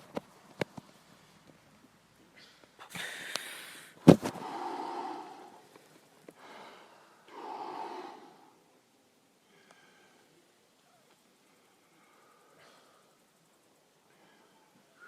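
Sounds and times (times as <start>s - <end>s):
forceful deep breathing: 2.4s - 8.8s.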